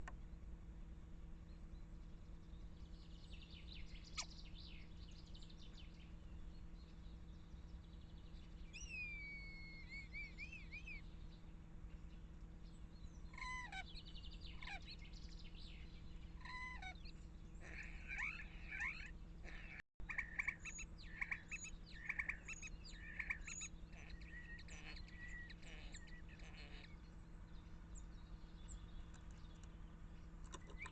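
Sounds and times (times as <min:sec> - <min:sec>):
buzzy bird chattering: 0:17.6 - 0:26.9.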